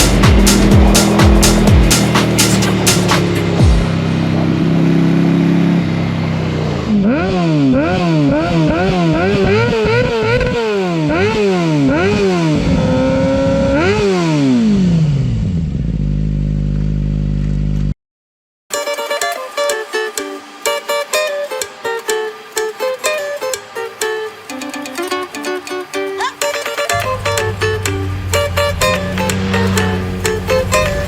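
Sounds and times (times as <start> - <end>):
motorcycle engine revving: 0.0 - 17.9, 26.8 - 31.0.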